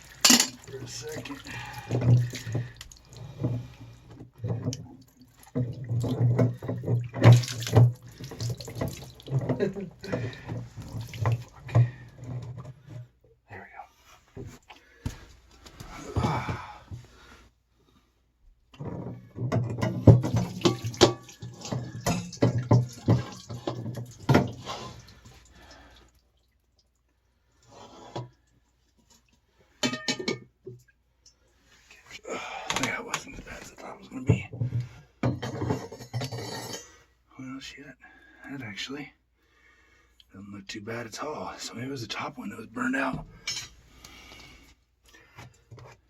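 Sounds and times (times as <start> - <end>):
water splashing and dripping: 0.0 - 12.1, 20.0 - 27.1.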